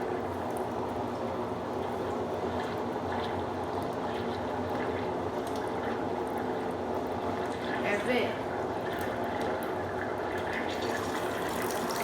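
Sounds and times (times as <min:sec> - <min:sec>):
washing machine motor hum: 0:00.0 - 0:12.0
water rushing through drain: 0:07.2 - 0:12.0.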